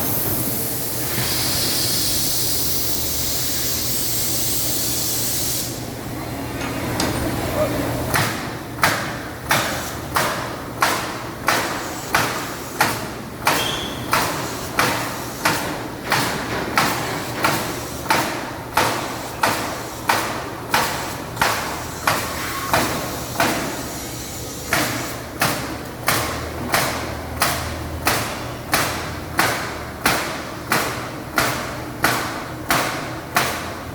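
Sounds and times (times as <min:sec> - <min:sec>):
nail gun firing into wood: 0:08.1 - 0:23.8, 0:24.7 - 0:33.8.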